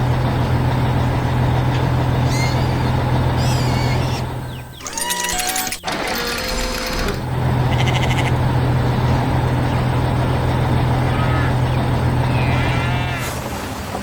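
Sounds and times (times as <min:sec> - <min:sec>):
farm machine engine droning: 0:00.0 - 0:14.0
animal calls: 0:02.2 - 0:05.6, 0:10.9 - 0:13.4.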